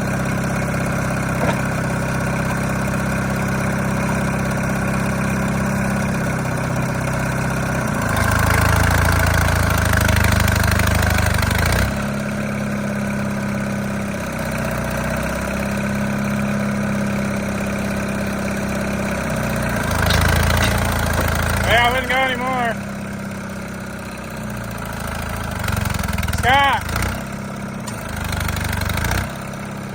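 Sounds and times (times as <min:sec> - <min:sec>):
bulldozer diesel under heavy load: 0:00.0 - 0:29.9.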